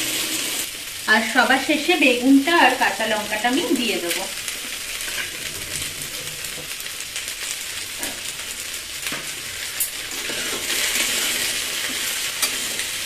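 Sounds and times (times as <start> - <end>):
vegetables sizzling in oil: 0.0 - 13.0
spatula clicking and scraping pan: 4.5 - 6.8, 9.0 - 13.0.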